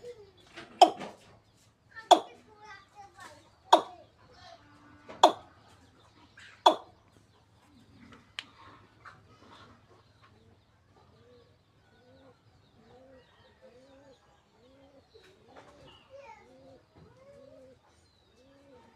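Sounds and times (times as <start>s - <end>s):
bird cooing: 0.0s - 1.2s, 2.1s - 2.4s, 3.7s - 4.1s, 5.2s - 5.5s, 6.4s - 6.9s, 7.8s - 18.9s
high bird chirps: 0.7s - 1.2s, 2.0s - 2.4s, 3.6s - 4.1s, 5.1s - 7.0s.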